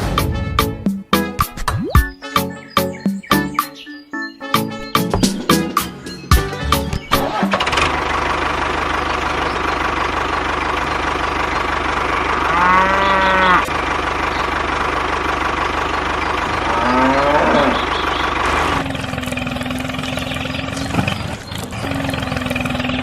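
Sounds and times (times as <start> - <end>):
engine chugging: 4.8 - 23.0
cow mooing: 12.4 - 13.7, 16.5 - 18.0.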